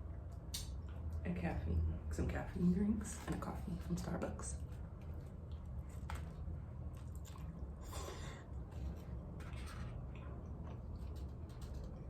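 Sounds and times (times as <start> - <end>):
steady low hum: 0.0 - 12.0
chewing and wet mouth sounds: 4.6 - 12.0.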